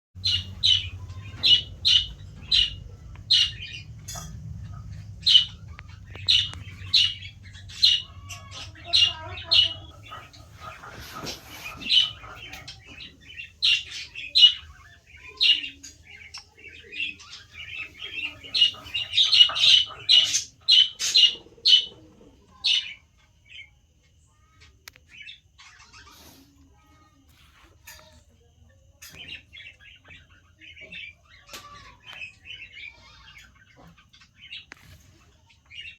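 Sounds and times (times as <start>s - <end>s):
low hum: 0.2s - 15.4s
bird calling: 0.2s - 22.0s.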